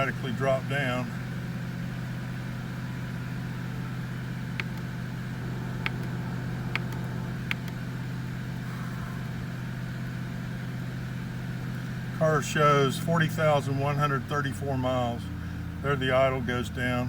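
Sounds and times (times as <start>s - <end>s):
car engine fast idle: 0.0s - 17.0s
short clicks: 4.6s - 4.9s, 5.8s - 6.2s, 6.8s - 7.8s.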